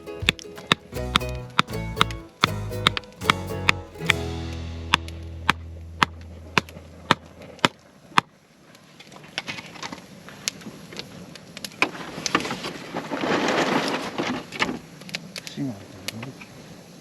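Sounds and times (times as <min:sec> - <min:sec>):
firewood cracking: 0:11.8 - 0:14.9.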